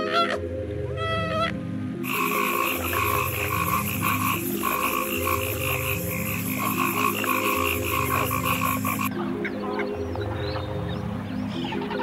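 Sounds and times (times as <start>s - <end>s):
soft background music: 0.0s - 12.0s
frogs croaking: 2.0s - 10.2s.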